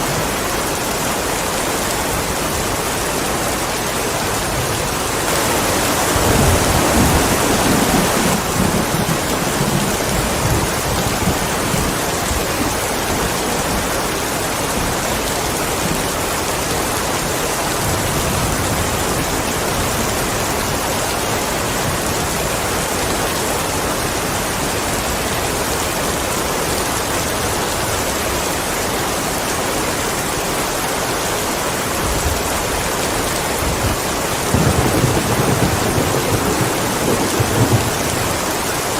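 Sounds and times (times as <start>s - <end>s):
heavy rain falling: 0.0s - 38.9s
thunder rumble: 5.3s - 14.0s, 33.6s - 38.9s.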